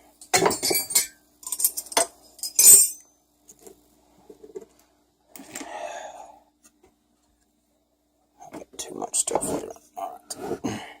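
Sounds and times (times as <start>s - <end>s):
metal tools clattering on workbench: 0.3s - 3.0s.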